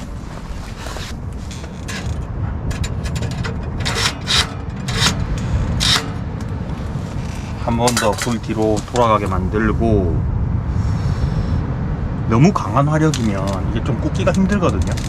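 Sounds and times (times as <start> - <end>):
fabric swishes: 0.0 - 1.7
clothing rustling: 0.0 - 2.3
low rumble: 0.0 - 15.0.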